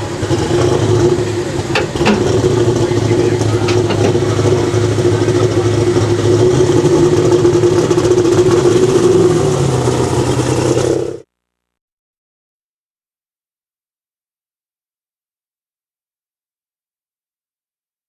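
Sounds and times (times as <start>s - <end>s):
tractor diesel engine running hard: 0.0s - 11.3s.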